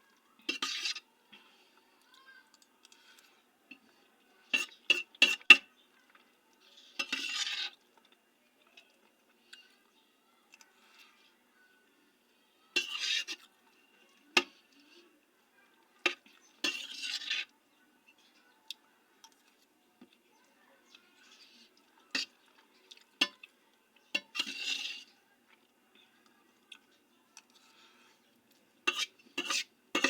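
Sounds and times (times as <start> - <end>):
utensil scraping dish: 0.5 - 1.0, 6.8 - 7.8, 12.8 - 13.4, 16.1 - 17.5, 24.2 - 25.1, 28.8 - 30.0.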